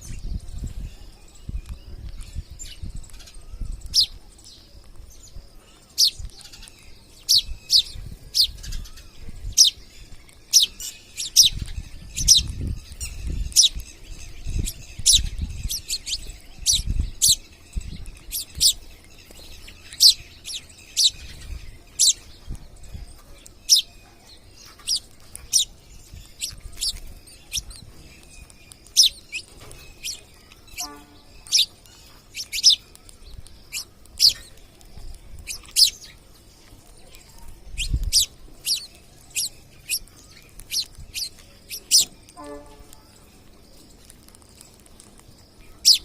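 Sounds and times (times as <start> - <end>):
parrots calling shrilly: 29.0 - 32.8.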